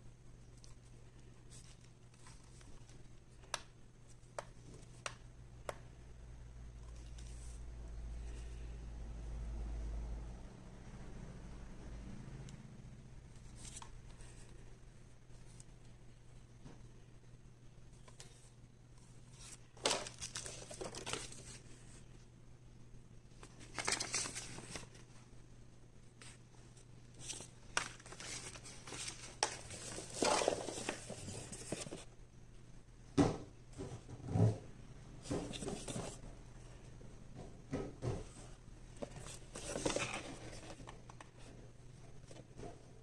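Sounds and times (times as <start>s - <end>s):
packaging crinkling: 19.8s - 21.6s.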